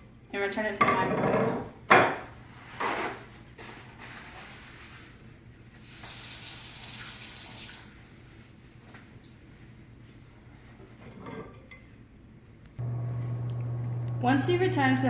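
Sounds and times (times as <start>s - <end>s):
water running from tap: 5.8s - 7.9s.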